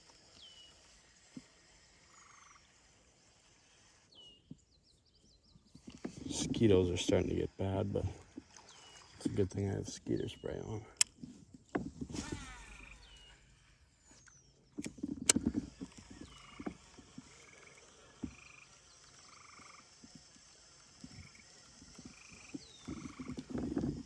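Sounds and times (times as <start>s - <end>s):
frogs trilling: 1.6s - 4.0s, 15.3s - 24.0s.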